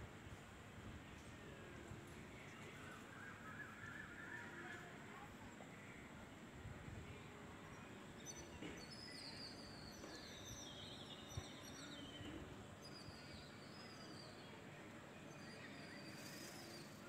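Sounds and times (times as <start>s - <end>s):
low background noise: 0.0s - 17.0s
small birds twittering: 7.6s - 17.0s.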